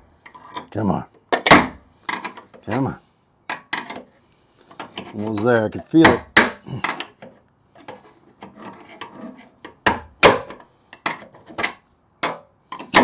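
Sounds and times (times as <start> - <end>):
sharp metal knocks: 9.8 - 10.6.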